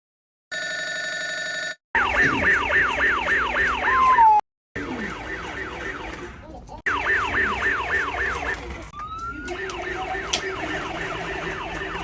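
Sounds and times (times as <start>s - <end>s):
toy fire truck electronic siren: 2.0s - 6.3s, 6.9s - 12.0s.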